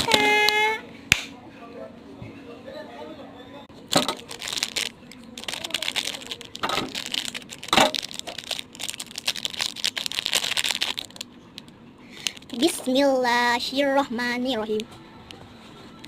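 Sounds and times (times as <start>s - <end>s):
plastic wrapper crinkling: 3.9s - 12.9s.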